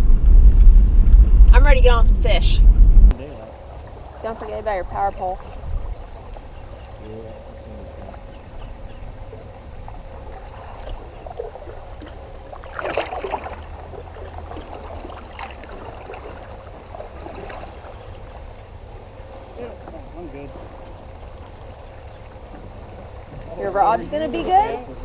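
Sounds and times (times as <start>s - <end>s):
wind rumble on microphone: 0.0s - 25.0s
paddle splashes: 3.2s - 25.0s
loud splash: 12.6s - 17.9s.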